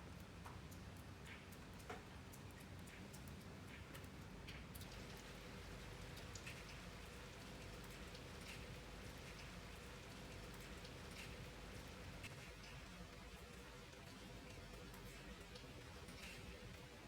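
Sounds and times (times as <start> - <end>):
soft rain hiss: 0.0 - 17.0
raindrops ticking: 0.1 - 16.5.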